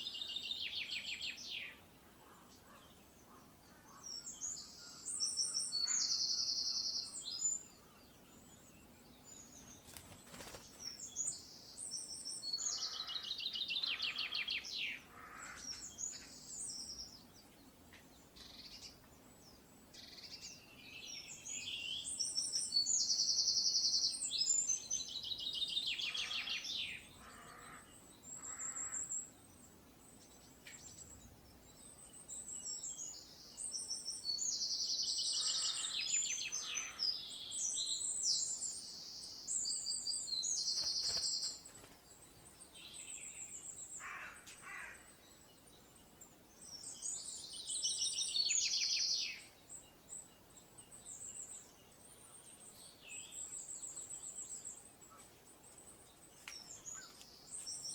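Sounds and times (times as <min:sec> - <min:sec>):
birdsong with rapid trills: 0:00.0 - 0:57.9
soft bird calls: 0:00.0 - 0:57.9.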